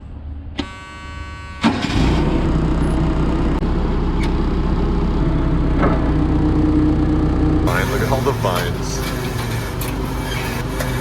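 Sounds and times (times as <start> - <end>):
car engine running: 0.2 - 11.0
starter motor whine: 0.6 - 11.0.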